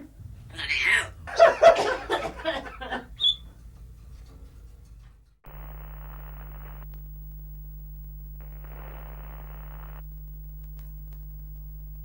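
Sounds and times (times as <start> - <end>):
low electrical hum: 0.0 - 12.0
static hiss bursts: 5.5 - 10.5.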